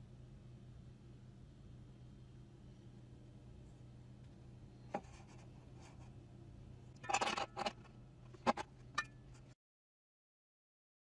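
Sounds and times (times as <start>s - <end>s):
faint low hum: 0.0s - 9.6s
scraping handling noise: 7.0s - 9.6s.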